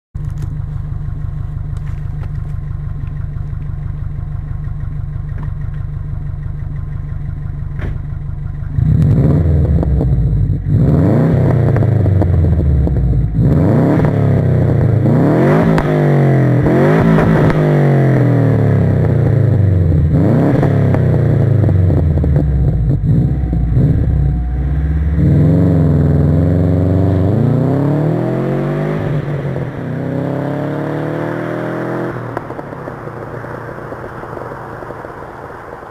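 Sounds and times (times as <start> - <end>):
car engine idling and revving: 0.2 - 35.9.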